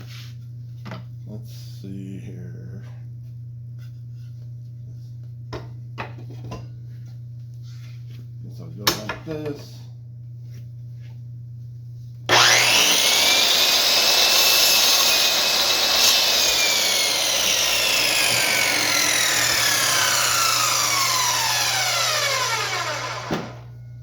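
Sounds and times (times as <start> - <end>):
saw blade cutting wood: 12.3 - 23.7
chop saw motor whining: 12.3 - 23.8.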